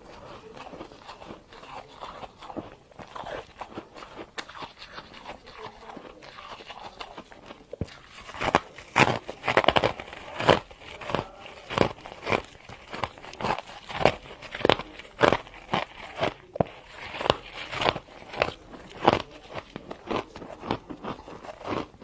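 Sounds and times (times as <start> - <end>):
person chewing crunchy frost: 0.0 - 22.0.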